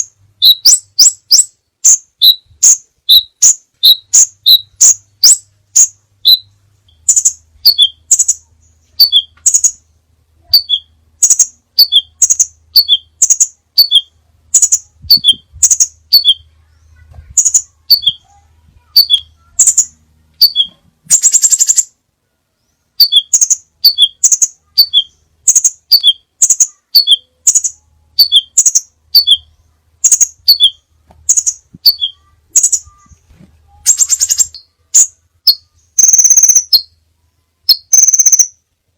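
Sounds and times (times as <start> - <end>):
bird rapid trill: 0.0 - 9.8, 10.5 - 16.5, 17.3 - 22.0, 23.0 - 37.0, 37.7 - 38.6
bird calling short high chips: 33.8 - 36.9.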